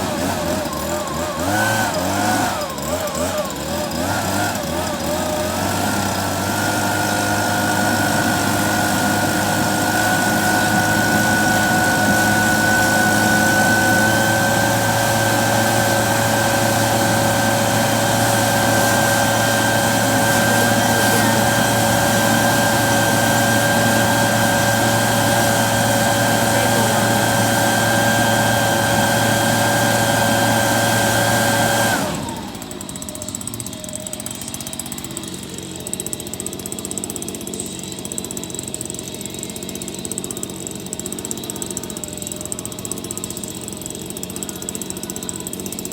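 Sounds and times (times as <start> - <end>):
motor whining: 0.0 - 36.4.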